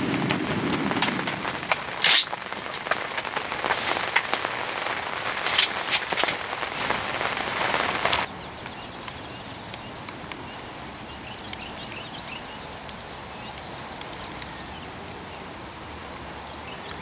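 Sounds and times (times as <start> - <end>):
drops cracking against a surface: 0.0 - 8.3
heavy rain pattering: 0.0 - 17.0.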